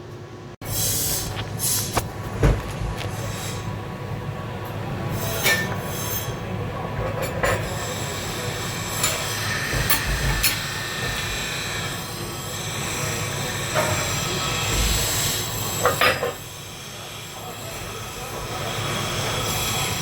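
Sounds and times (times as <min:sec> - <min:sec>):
welding arc crackling hiss: 0:00.6 - 0:03.7.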